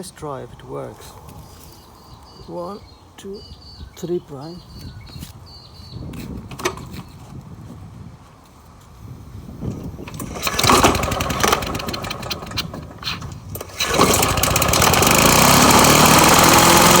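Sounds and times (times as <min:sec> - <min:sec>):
lawn mower engine pull-started: 0:06.5 - 0:07.0, 0:09.7 - 0:17.0.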